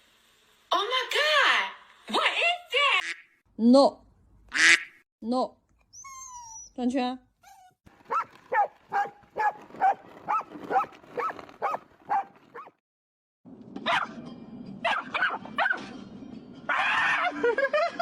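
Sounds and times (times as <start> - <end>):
dog barking: 8.1 - 12.7, 13.8 - 14.2, 14.8 - 15.9.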